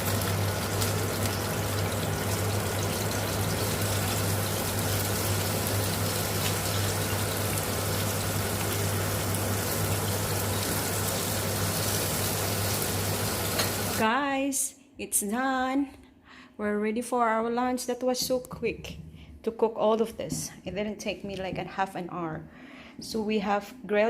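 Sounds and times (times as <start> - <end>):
fish sizzling in a skillet: 0.0 - 14.0.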